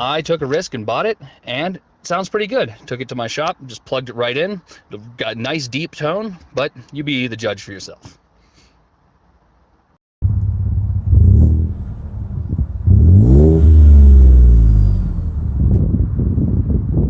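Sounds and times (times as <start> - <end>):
truck engine revving: 10.2 - 15.7.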